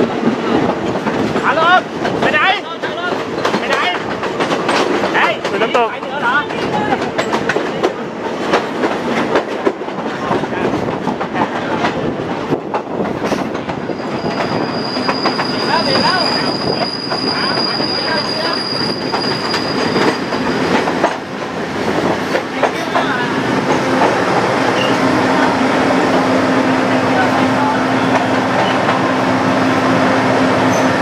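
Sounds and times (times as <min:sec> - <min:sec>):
wheels clattering over rail joints: 0:00.6 - 0:13.9
high wheel squeal: 0:13.9 - 0:20.6, 0:24.7 - 0:25.1.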